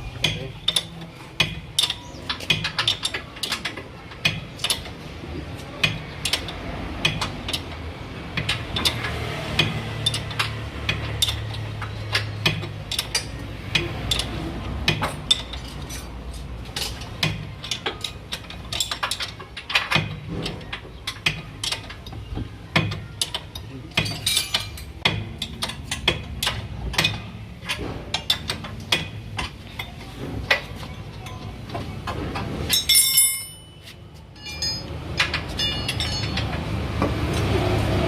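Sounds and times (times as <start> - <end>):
hand tools clinking on metal: 22.8 - 30.0, 32.7 - 36.7.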